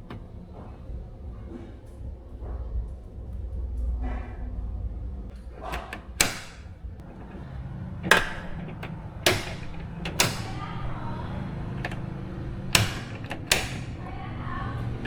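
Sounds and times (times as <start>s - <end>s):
low steady rumble: 0.0s - 15.0s
sharp knocks: 5.6s - 14.3s.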